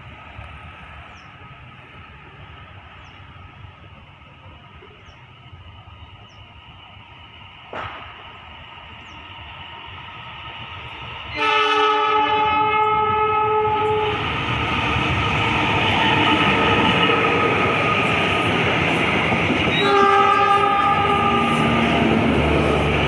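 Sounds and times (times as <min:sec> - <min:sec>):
train rumbling past on rails: 0:00.0 - 0:23.0
locomotive horn blast: 0:11.3 - 0:14.2, 0:19.7 - 0:22.0.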